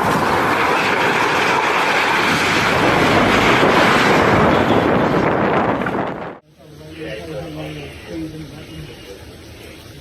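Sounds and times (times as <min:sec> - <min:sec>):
storm wind rushing: 0:00.0 - 0:06.4
wind buffeting microphone: 0:02.0 - 0:06.4.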